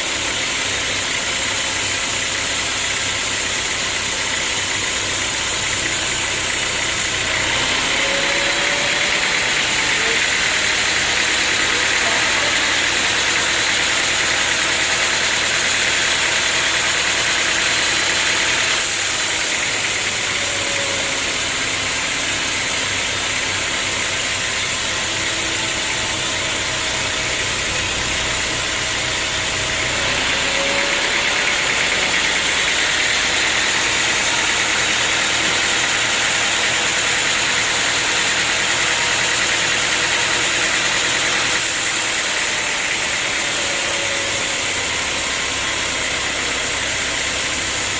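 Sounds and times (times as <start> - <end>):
sawmill machinery hum and hiss: 0.0 - 47.9.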